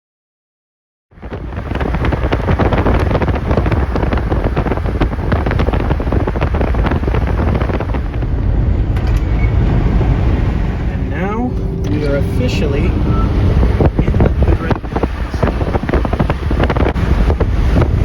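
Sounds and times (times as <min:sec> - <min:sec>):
moving vehicle rushing noise: 0:01.1 - 0:18.0
wind buffeting microphone: 0:01.1 - 0:18.0.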